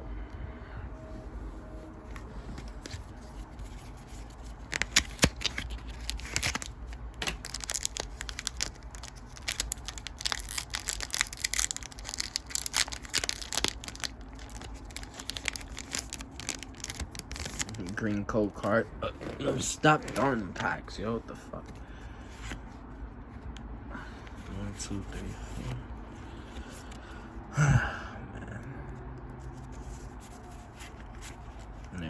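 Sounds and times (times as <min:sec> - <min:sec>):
foil wrapper crinkling: 0:04.1 - 0:18.1
foil wrapper tearing: 0:04.2 - 0:18.1.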